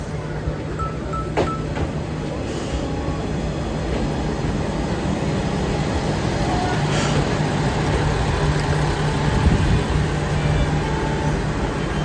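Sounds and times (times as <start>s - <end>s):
short high beeps: 0.0s - 1.8s
diesel railcar rumbling: 0.0s - 12.0s.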